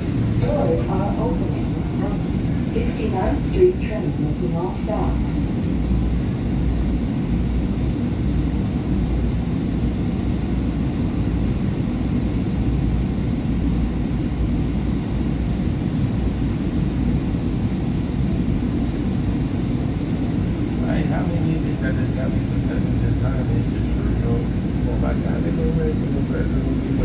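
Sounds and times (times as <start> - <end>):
train car equipment rumbling: 0.0 - 5.0, 21.9 - 27.0
station ambience: 0.0 - 7.4, 17.4 - 27.0.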